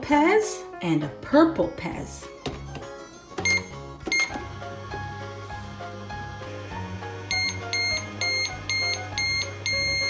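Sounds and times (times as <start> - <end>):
background music: 0.0 - 10.0
toy microwave beeping: 3.4 - 4.6, 6.6 - 10.0.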